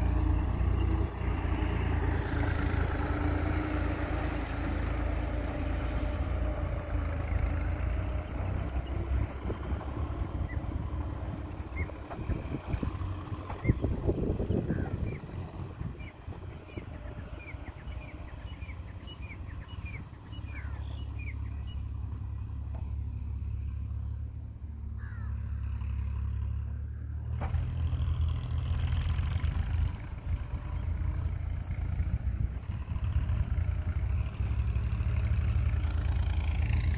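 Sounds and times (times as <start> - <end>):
tractor diesel engine under load: 0.0 - 36.9
bird chirps: 14.5 - 21.9.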